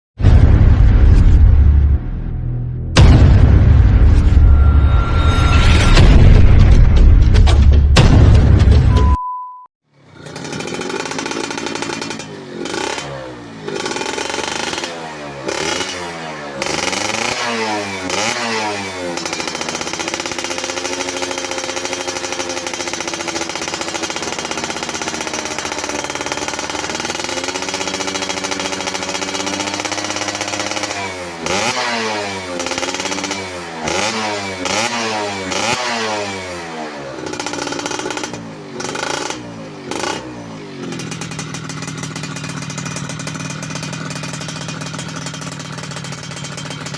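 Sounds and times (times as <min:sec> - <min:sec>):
two-stroke engine revving: 0:09.9 - 0:46.9.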